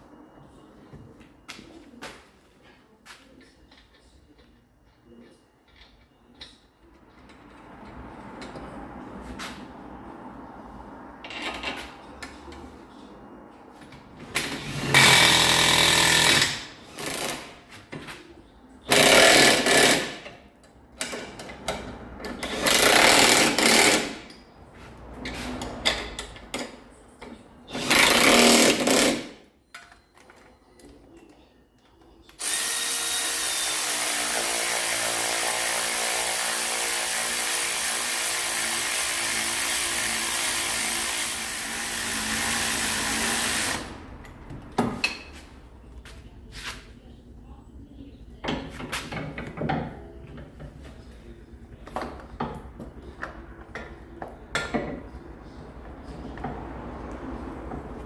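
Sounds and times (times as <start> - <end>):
pneumatic impact wrench rattling: 14.4 - 17.5, 18.9 - 20.3, 22.3 - 24.2, 27.7 - 29.4.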